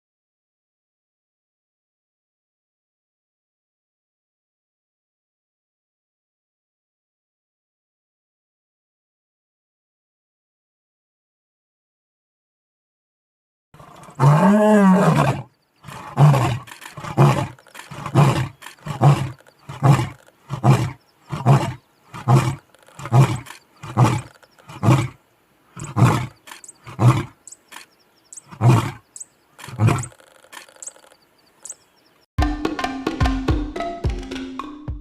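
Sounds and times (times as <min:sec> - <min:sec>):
lion roaring and grunting: 0:13.8 - 0:25.2, 0:25.8 - 0:27.8, 0:28.4 - 0:31.1.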